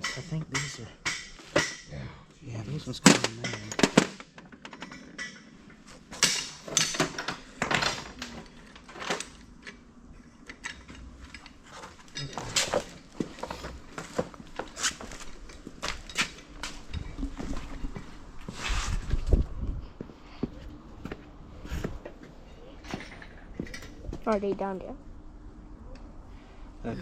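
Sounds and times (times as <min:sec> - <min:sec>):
metal parts clanking: 0:03.0 - 0:09.8, 0:10.4 - 0:13.7.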